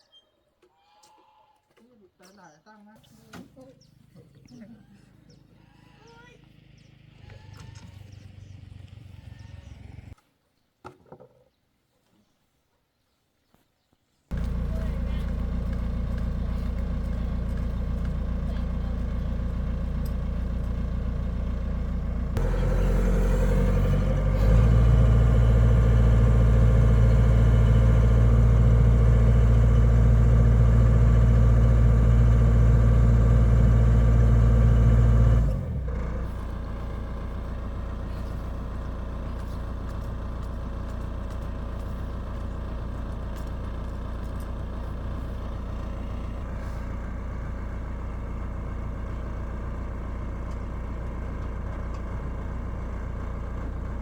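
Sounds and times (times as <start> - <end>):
heavy diesel engine running: 14.3 - 54.0.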